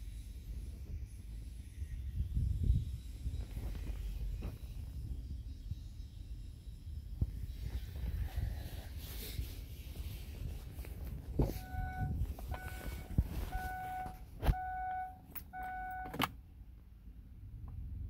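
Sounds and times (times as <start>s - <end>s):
dashboard warning chime beeping: 11.5s - 16.3s.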